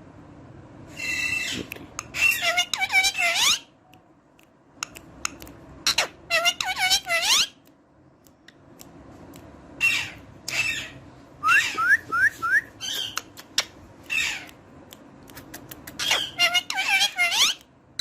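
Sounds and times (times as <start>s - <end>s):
parrot squawk: 1.0s - 3.7s, 5.8s - 7.6s, 9.8s - 12.0s, 14.1s - 14.5s, 16.0s - 17.6s
parrot whistled chirps: 9.8s - 13.2s.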